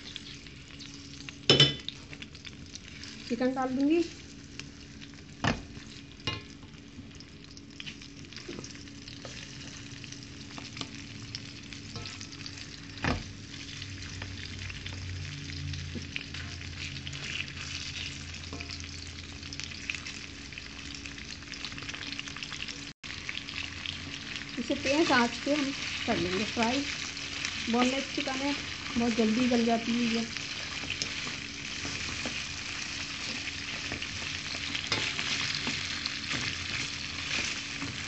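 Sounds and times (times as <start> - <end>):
chicken sizzling in hot oil: 0.0 - 38.0
spatula scraping the pan: 11.9 - 12.8, 30.4 - 38.0.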